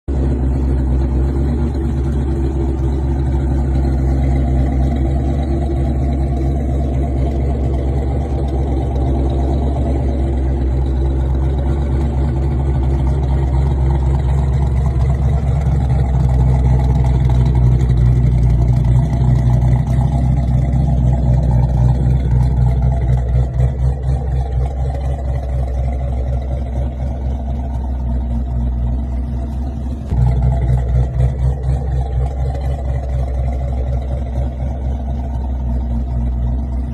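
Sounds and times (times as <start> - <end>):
car engine rumbling: 0.0 - 36.9.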